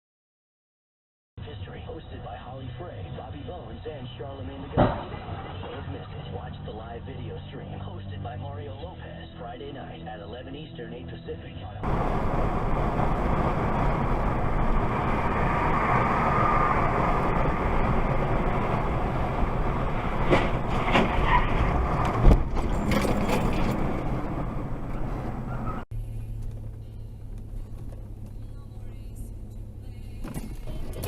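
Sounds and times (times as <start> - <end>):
car road and engine noise: 1.4 - 10.1, 10.9 - 31.0
sharp loud thump: 4.8 - 5.4.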